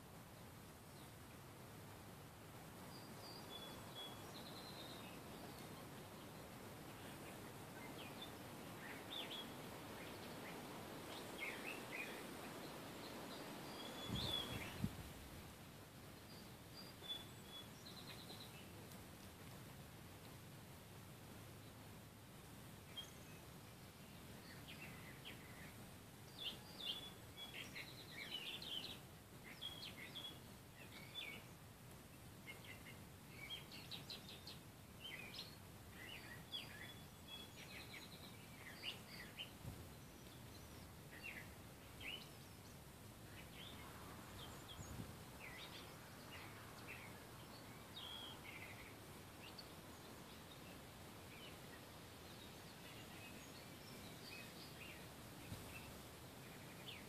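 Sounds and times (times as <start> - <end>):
faint steady hiss: 0.0 - 57.0
songbirds chirping and singing: 3.0 - 14.9, 24.0 - 57.0.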